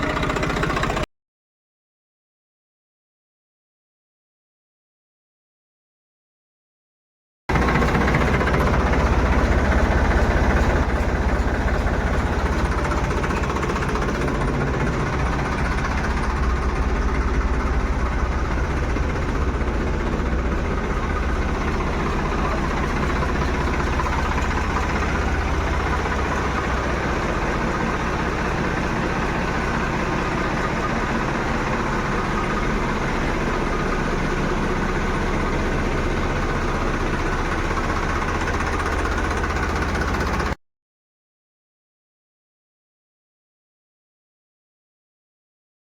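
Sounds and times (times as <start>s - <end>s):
diesel tractor engine idling: 0.0s - 1.1s, 7.5s - 40.6s.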